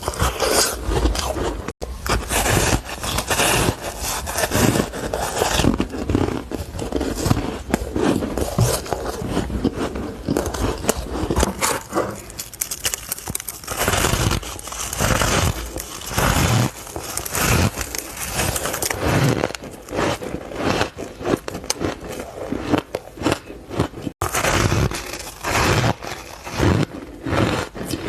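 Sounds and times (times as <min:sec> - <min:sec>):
ice being chewed: 0:00.0 - 0:28.0.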